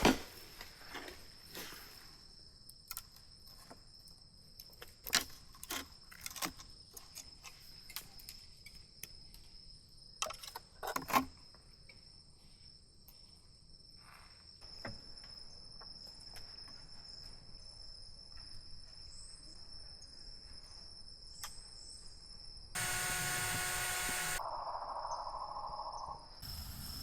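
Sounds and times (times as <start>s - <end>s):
insect trill: 11.6s - 27.0s
loud noise with hiss and tones: 22.8s - 24.4s, 26.4s - 27.0s.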